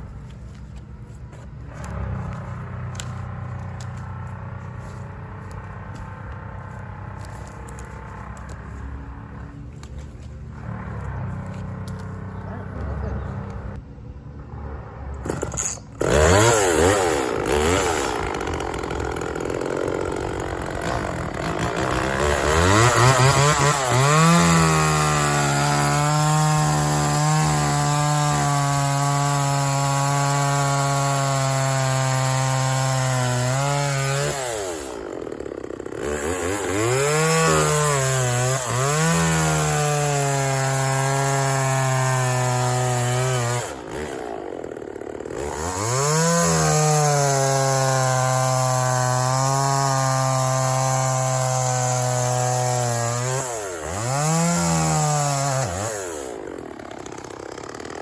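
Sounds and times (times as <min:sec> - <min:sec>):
chainsaw cutting branches: 0:00.0 - 0:13.8, 0:15.2 - 0:58.0.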